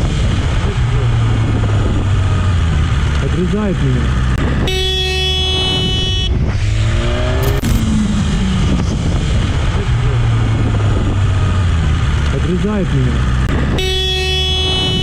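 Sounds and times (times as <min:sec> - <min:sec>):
road and engine rumble: 0:00.0 - 0:15.0
vehicle horn blaring: 0:04.4 - 0:06.4, 0:13.6 - 0:15.0
engine revving: 0:06.3 - 0:13.8.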